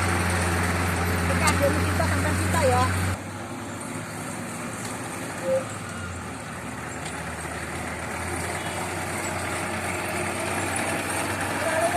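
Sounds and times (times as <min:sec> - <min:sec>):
heavy vehicle engine running: 0:00.0 - 0:11.9.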